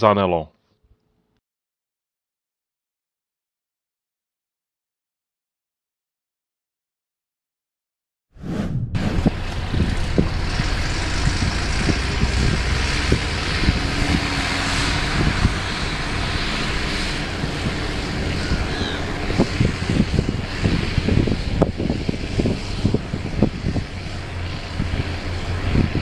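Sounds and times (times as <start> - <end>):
tractor diesel engine running: 9.0 - 26.0.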